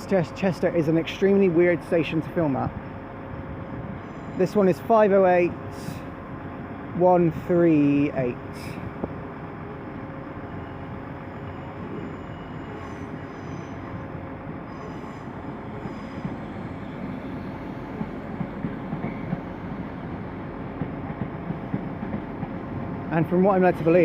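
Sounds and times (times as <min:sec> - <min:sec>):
electric train running slowly: 0:00.0 - 0:24.0
faint high wheel squeals: 0:10.4 - 0:18.0.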